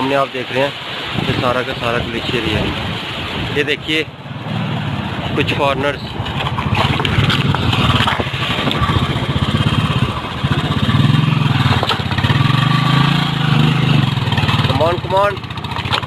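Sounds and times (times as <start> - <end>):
motorcycle engine revving: 4.2 - 16.0.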